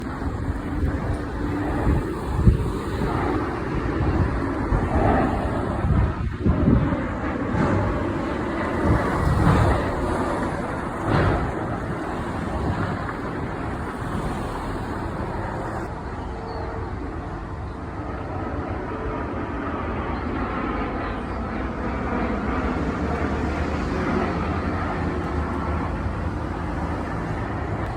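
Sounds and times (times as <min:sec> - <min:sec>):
distant rumble: 0:00.0 - 0:15.9
wind buffeting microphone: 0:00.0 - 0:27.9.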